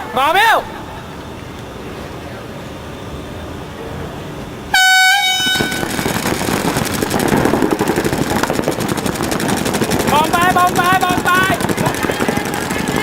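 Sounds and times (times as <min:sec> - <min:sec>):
air horn blast: 0:04.7 - 0:06.2
paintball markers firing: 0:05.6 - 0:13.0.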